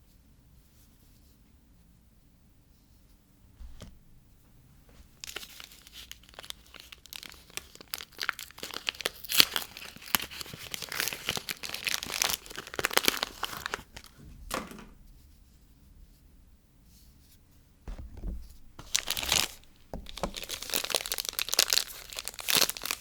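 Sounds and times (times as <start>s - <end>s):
wrapper crackling and rustling: 3.8s - 14.2s, 18.2s - 23.0s.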